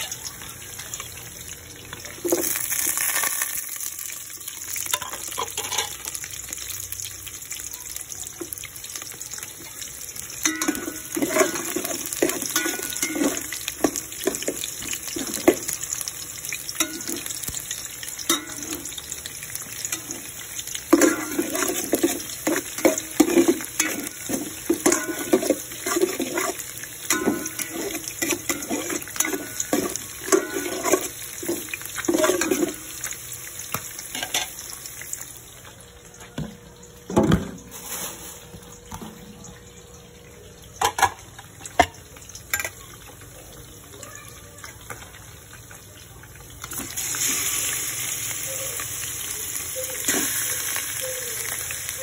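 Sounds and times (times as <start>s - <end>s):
garlic and onion sizzling in oil: 0.0s - 40.0s, 40.7s - 52.0s
spatula scraping a metal pot: 10.5s - 15.6s, 20.9s - 32.8s.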